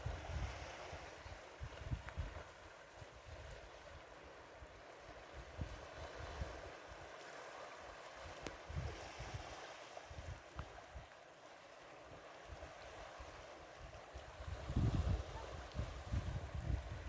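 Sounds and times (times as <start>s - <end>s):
wind buffeting microphone: 0.0s - 4.0s, 8.2s - 11.1s, 12.5s - 17.0s.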